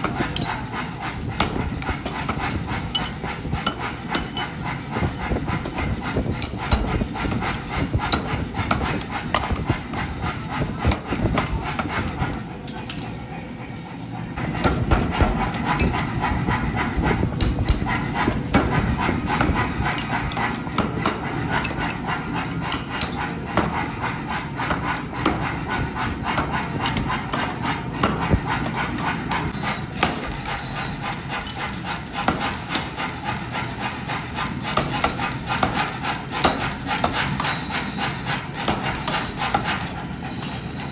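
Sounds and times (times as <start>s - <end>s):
hammer striking hot steel: 0.0s - 13.4s, 14.4s - 40.9s.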